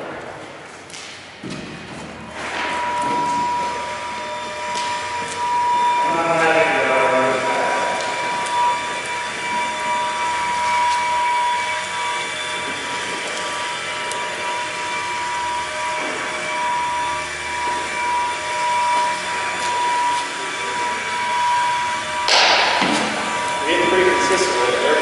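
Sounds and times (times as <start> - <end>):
machine drone with high whine: 0.0 - 25.0.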